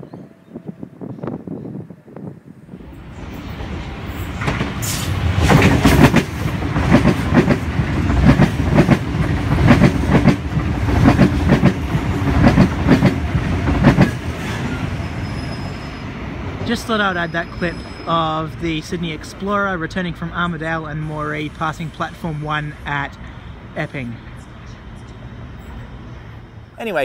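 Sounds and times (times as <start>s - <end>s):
train low rumble: 0.1s - 27.0s.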